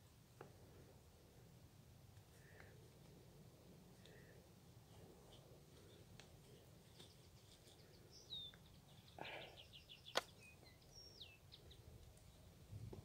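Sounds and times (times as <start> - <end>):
soft rustle: 0.2 - 9.1
faint bird calls: 4.0 - 12.6.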